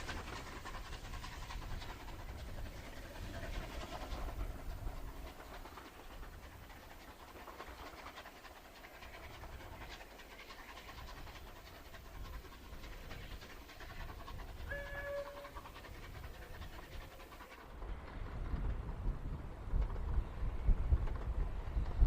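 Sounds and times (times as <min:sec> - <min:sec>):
steam locomotive exhaust beats: 0:00.0 - 0:22.0
wind rumble on microphone: 0:17.8 - 0:22.0.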